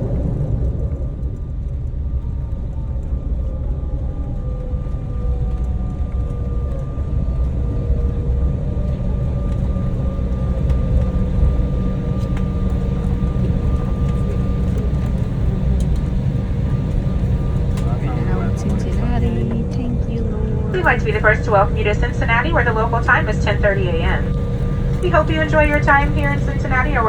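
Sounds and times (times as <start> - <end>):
deep rumble of aircraft engines: 0.0 - 27.0
steady high whine: 11.3 - 27.0
engine whine falling in pitch: 13.2 - 27.0.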